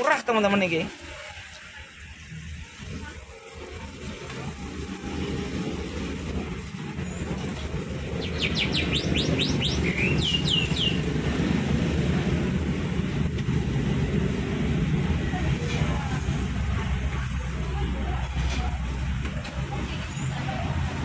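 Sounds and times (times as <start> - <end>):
small bird chirping: 8.1 - 11.1.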